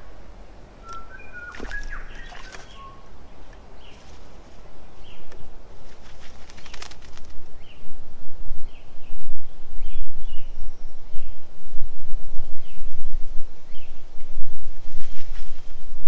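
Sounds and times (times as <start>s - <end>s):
water splashing: 0.6s - 3.6s
short high bird chirps: 0.8s - 3.1s
wings fluttering: 0.8s - 4.6s, 5.2s - 7.7s, 14.6s - 16.0s.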